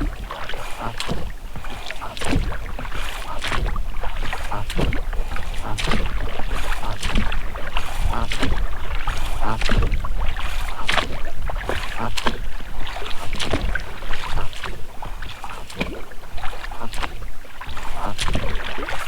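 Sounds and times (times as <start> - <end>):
rubber rowlocks creaking: 0.0 - 14.6
oars splashing in water: 0.0 - 19.0
wind on microphone: 0.0 - 19.0.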